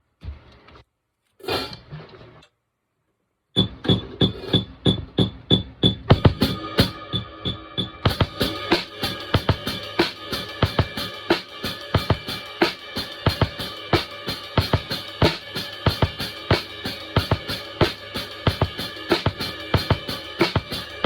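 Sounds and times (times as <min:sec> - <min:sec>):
drum kit groove: 0:03.6 - 0:21.0
keyboard backing track: 0:03.6 - 0:21.0
cymbals: 0:06.1 - 0:21.0.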